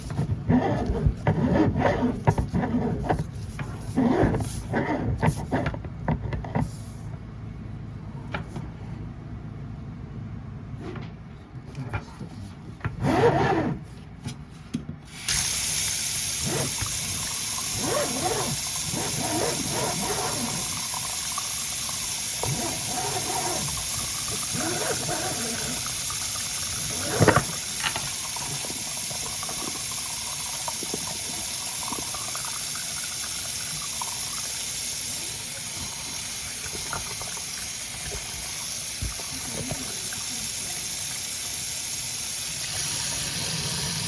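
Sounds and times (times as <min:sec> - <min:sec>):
hiss of rushing water: 0:15.2 - 0:44.0.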